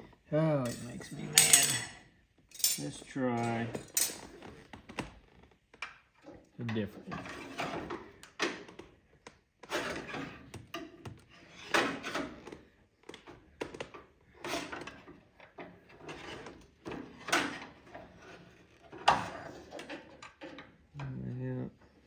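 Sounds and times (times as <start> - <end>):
metal rod scraping and knocking: 0.6 - 2.0.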